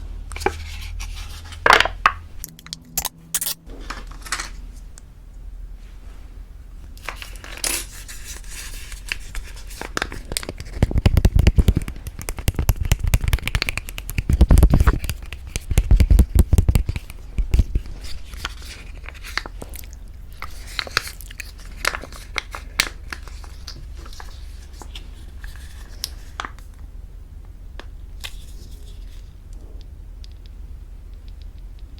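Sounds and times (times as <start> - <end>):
food packaging crinkling and tearing: 7.0 - 26.7.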